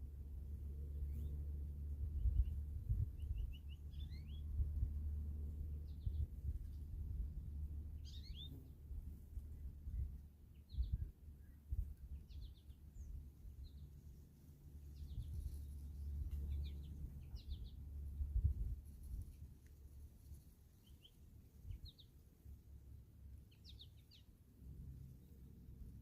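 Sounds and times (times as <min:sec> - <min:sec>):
steady low rumble: 0:00.0 - 0:26.0
small birds chirping: 0:02.1 - 0:04.6, 0:05.8 - 0:07.3, 0:07.9 - 0:08.9, 0:09.6 - 0:22.3, 0:23.3 - 0:24.4.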